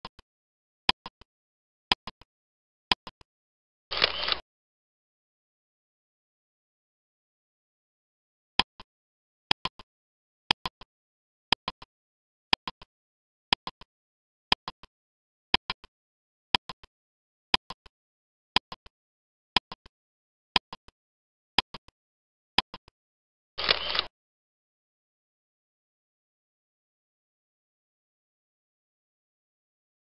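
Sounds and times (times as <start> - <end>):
countdown timer ticking: 14.5 - 14.9, 16.5 - 16.9, 17.5 - 17.9, 18.6 - 18.9, 19.6 - 19.9, 20.6 - 21.0, 21.6 - 22.0.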